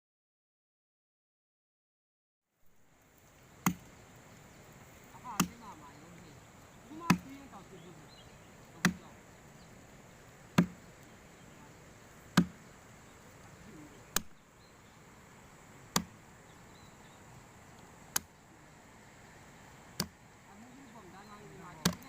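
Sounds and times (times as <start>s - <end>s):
hand tool chopping strikes: 3.6s - 3.9s, 5.4s - 5.6s, 7.1s - 7.3s, 8.8s - 9.0s, 10.5s - 10.8s, 12.3s - 12.6s, 15.9s - 16.2s, 18.1s - 18.3s, 20.0s - 20.2s.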